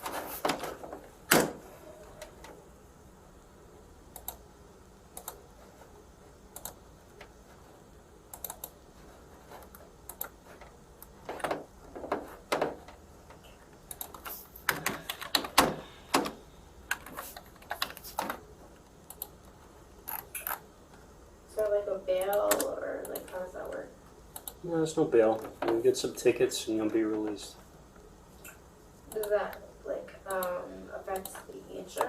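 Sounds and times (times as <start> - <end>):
typing on computer keyboard: 8.4 - 8.8.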